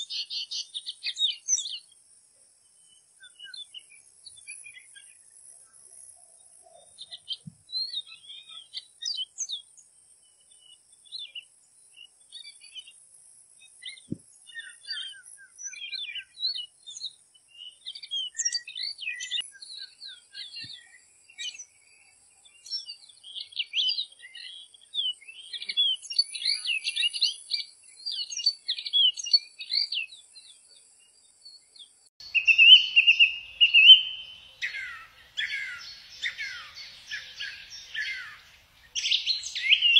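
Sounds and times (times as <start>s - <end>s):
faint high insect hiss: 0.0s - 23.5s, 32.2s - 39.9s
small birds chirping and trilling: 0.0s - 39.9s.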